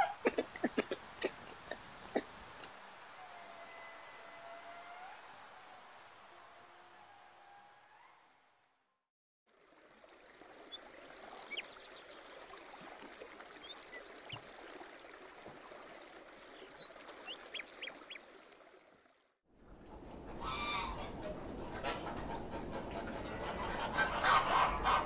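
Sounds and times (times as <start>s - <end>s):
geese honking: 20.4s - 25.0s.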